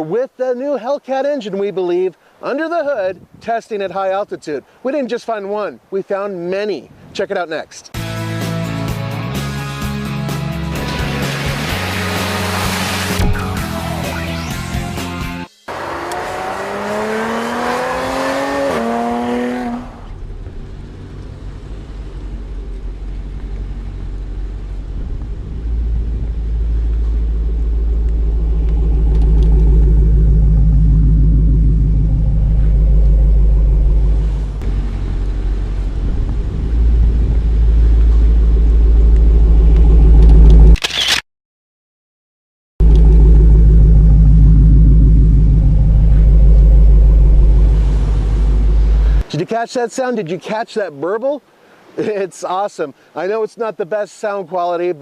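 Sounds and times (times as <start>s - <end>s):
car engine burbling: 15.7s - 40.8s, 42.8s - 49.3s
sound rising in pitch: 25.1s - 35.1s, 36.0s - 40.8s, 42.8s - 49.2s.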